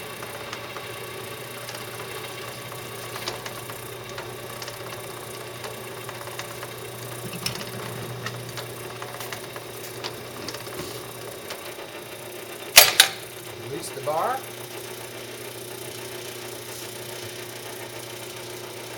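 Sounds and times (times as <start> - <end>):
washing machine hum: 0.0 - 18.9
drive mechanism clicks and knocks: 0.1 - 11.9.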